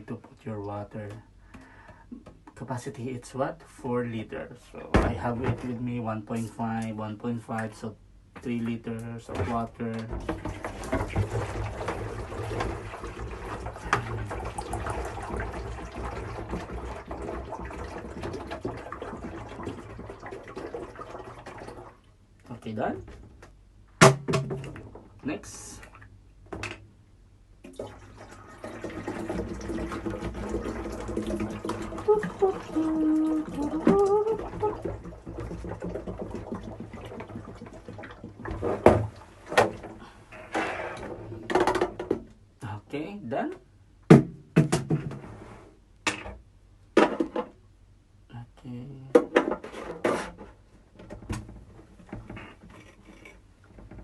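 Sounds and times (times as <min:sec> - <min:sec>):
water pouring into tank: 0:10.2 - 0:22.1, 0:27.6 - 0:40.0.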